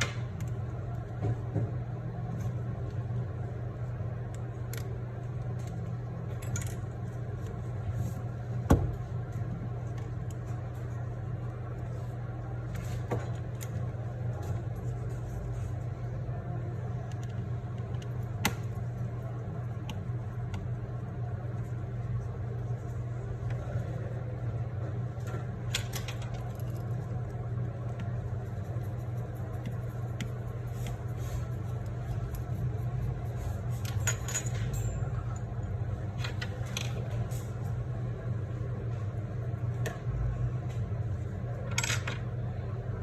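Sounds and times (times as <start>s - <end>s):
metal tools clicking and clinking: 33.8s - 35.5s.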